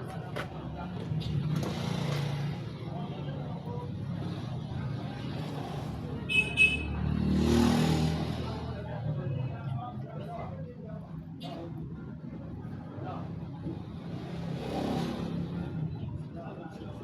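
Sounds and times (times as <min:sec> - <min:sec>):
traffic passing: 0:00.0 - 0:17.0.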